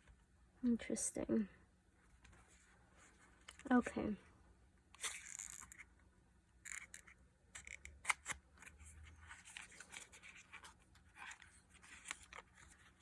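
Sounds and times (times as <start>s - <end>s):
small box being handled: 5.0s - 5.9s, 6.6s - 13.0s.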